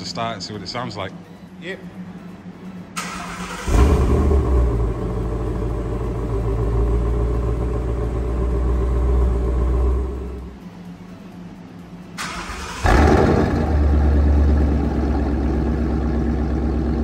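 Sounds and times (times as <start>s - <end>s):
car engine starting and idling: 2.9s - 11.3s, 12.0s - 17.0s.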